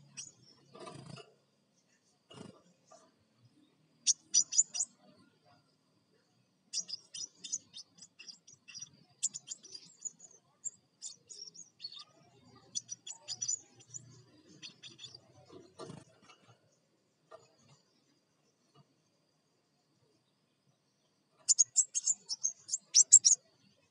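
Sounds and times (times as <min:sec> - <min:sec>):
bird chattering chirps: 0:00.0 - 0:01.2, 0:04.0 - 0:05.1, 0:06.7 - 0:16.2, 0:21.4 - 0:23.5.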